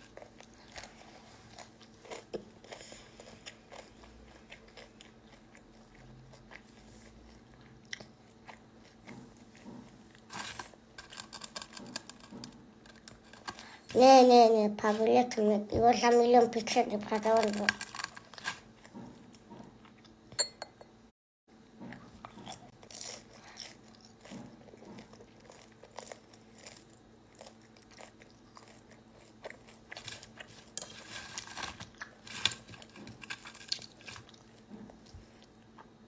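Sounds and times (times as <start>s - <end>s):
person chewing and crunching food: 0.0s - 14.0s, 17.0s - 20.3s, 21.8s - 36.0s.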